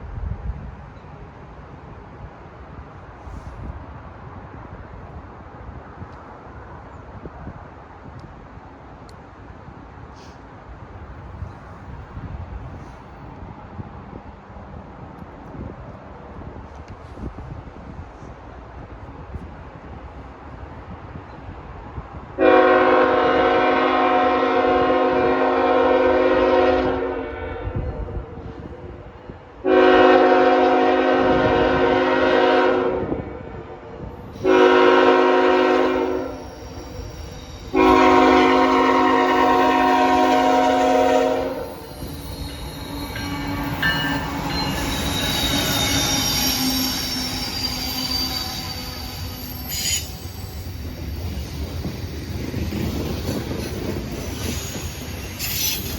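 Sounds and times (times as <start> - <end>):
locomotive air horn blasts: 22.4 - 27.8, 29.6 - 33.2, 34.4 - 36.8, 37.7 - 50.1
train wheel noise: 27.7 - 55.9
high wheel squeal: 34.3 - 55.9.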